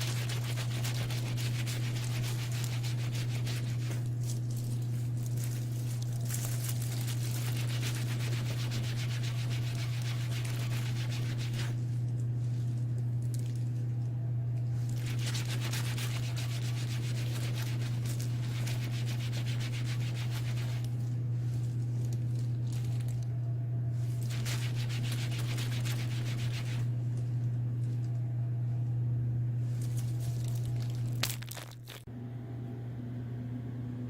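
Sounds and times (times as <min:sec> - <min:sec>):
rubbing on leather bag: 0:00.0 - 0:11.9, 0:14.9 - 0:23.1, 0:24.0 - 0:26.9
steady low hum: 0:00.0 - 0:34.0.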